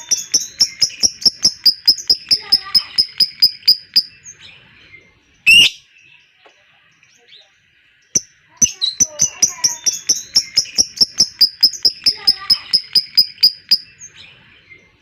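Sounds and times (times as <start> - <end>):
lovebird chattering trill: 0.0 - 4.2, 8.2 - 14.0
loud harsh bird squawk: 5.5 - 5.8.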